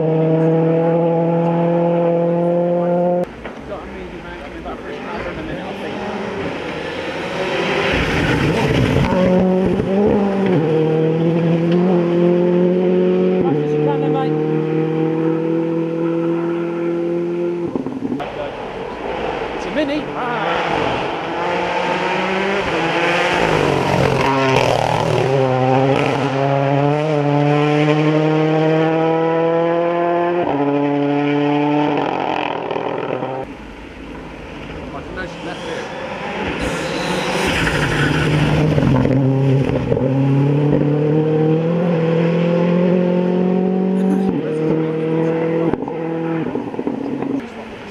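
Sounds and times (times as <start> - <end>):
rushing noise from car: 0.0 - 13.5, 14.3 - 47.9
rally car engine: 0.0 - 47.9.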